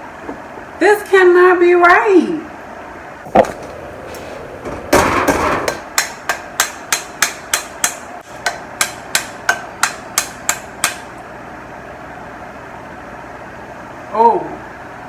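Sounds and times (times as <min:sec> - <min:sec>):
scraping rub: 0:03.4 - 0:05.8.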